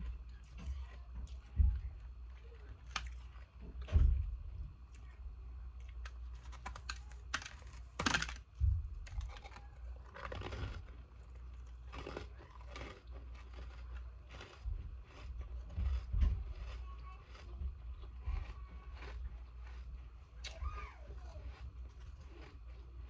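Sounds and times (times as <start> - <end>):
ice being chewed: 2.3 - 3.6, 5.8 - 8.4, 9.0 - 23.0.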